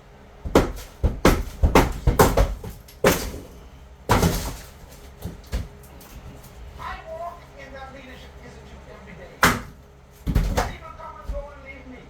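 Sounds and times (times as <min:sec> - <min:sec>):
loud knocks on a wall: 0:00.4 - 0:05.8, 0:09.4 - 0:11.5.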